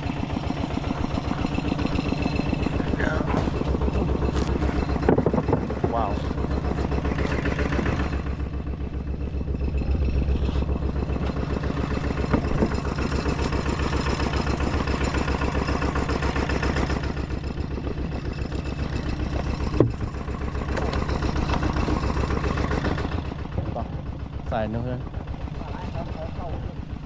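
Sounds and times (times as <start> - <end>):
small engine running: 0.0 - 27.0.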